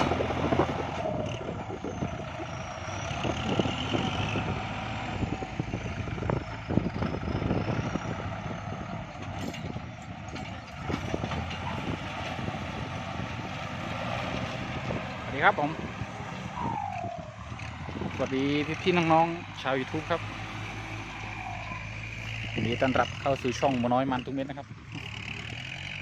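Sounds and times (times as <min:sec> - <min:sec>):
tractor diesel engine running: 0:00.0 - 0:26.0
irregular knocks and clatter: 0:09.1 - 0:11.7.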